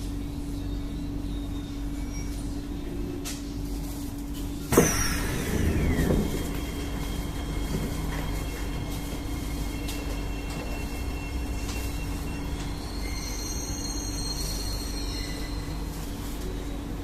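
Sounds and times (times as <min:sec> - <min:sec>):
train humming: 0:00.0 - 0:17.0
train rumble: 0:00.0 - 0:17.0
loud metal clank: 0:04.7 - 0:08.2
falling whine: 0:04.7 - 0:11.3.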